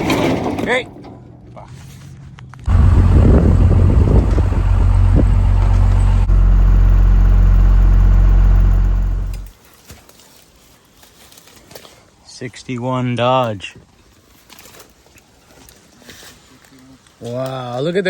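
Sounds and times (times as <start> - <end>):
engine running: 2.7 - 9.5.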